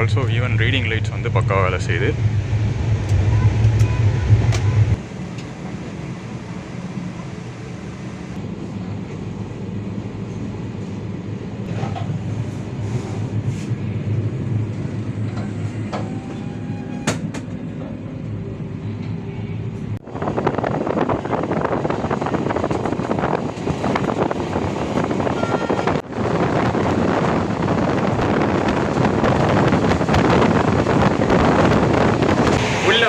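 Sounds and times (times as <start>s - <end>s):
train rumbling at speed: 0.0s - 33.0s
loud rushing noise: 26.0s - 33.0s.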